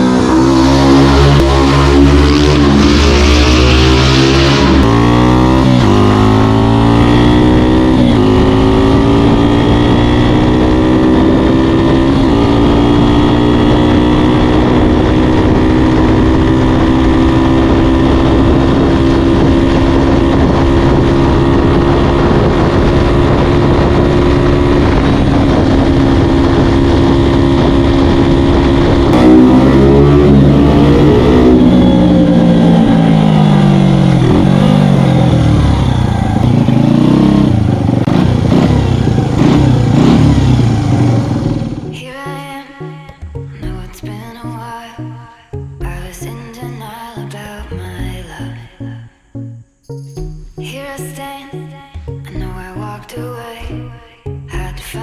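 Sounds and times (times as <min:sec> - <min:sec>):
motorcycle engine at full throttle: 0:00.0 - 0:42.0.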